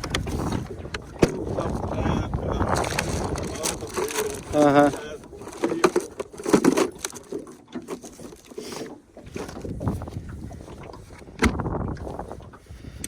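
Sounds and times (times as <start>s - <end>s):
loud thump against boat: 0.0s - 1.9s, 11.4s - 11.7s
knocks and rustling in boat: 0.0s - 13.0s.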